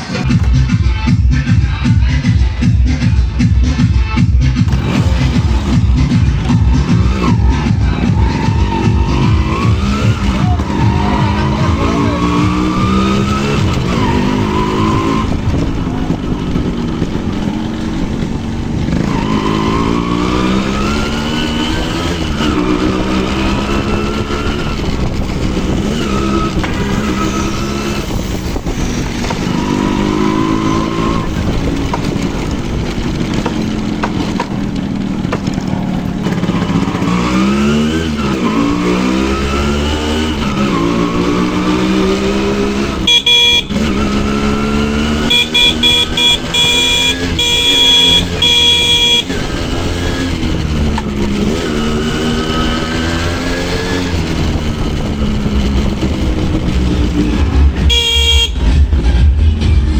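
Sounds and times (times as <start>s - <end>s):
motorcycle engine revving: 0.0s - 59.9s
wind rushing over microphone: 6.9s - 30.1s, 49.3s - 57.9s.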